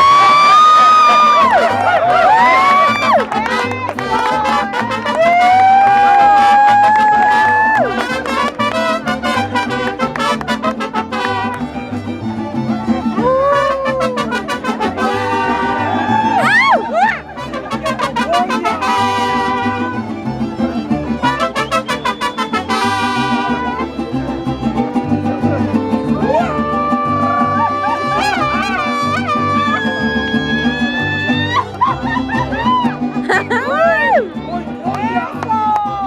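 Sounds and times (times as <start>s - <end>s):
trumpets playing: 0.0s - 11.8s, 13.6s - 16.2s, 17.3s - 20.1s, 21.2s - 23.9s, 27.6s - 31.4s
fast strummed guitars: 0.0s - 36.0s.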